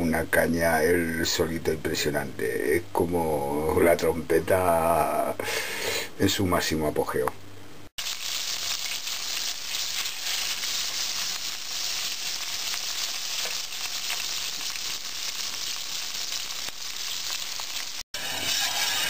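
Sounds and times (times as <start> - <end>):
sausage sizzling in hot oil: 8.0 - 19.0.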